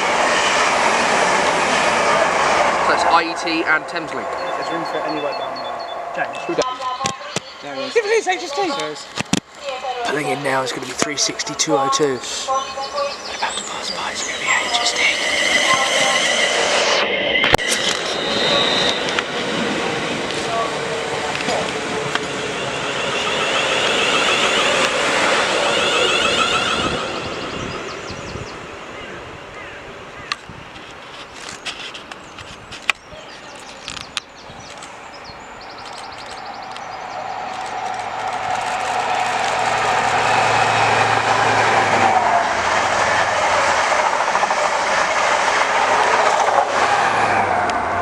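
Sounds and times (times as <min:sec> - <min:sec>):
diesel train passing: 0:00.0 - 0:31.6, 0:33.4 - 0:48.0.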